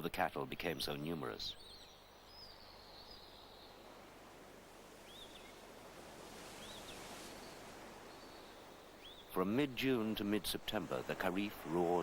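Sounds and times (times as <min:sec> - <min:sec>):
wind: 0:00.0 - 0:12.0
bird chirps: 0:06.6 - 0:09.4.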